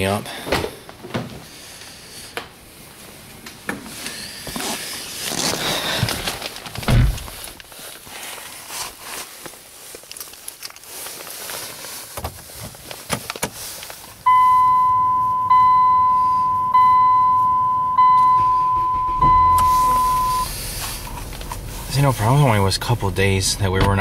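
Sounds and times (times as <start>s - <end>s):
knocks and footsteps: 6.0s - 7.7s, 18.0s - 21.9s
car warning chime: 14.3s - 20.5s.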